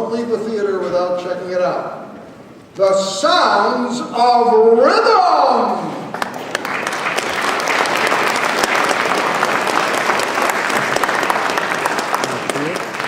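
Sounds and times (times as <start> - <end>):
theatre audience applauding: 6.1 - 13.0.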